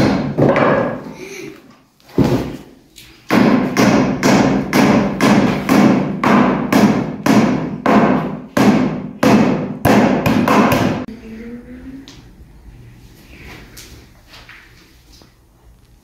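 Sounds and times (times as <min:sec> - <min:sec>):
hammer striking wood: 0:00.0 - 0:01.0, 0:03.3 - 0:11.1.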